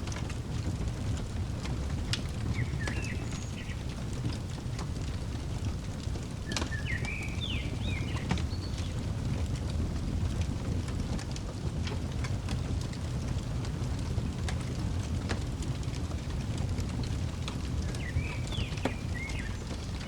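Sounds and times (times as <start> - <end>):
wood fire crackling and popping: 0.0 - 20.0
small bird chirping: 2.5 - 3.9, 6.5 - 8.9, 17.9 - 20.0.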